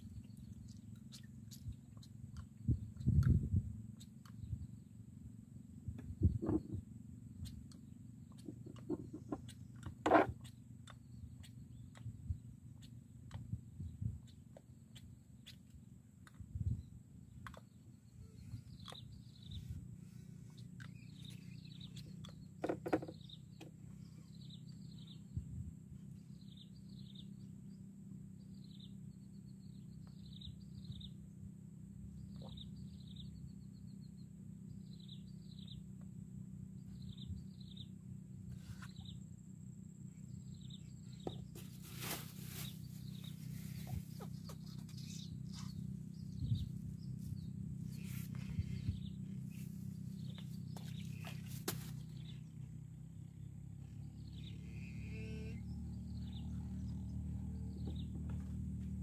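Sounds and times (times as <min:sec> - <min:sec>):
steady low hum: 0:00.0 - 0:59.0
bird chirping: 0:06.2 - 0:25.4, 0:32.2 - 0:35.9, 0:36.7 - 0:58.6.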